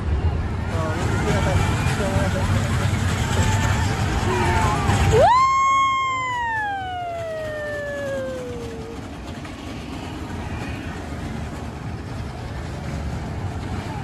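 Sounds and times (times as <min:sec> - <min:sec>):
low rumble: 0:00.0 - 0:14.0
siren winding down: 0:05.1 - 0:09.0.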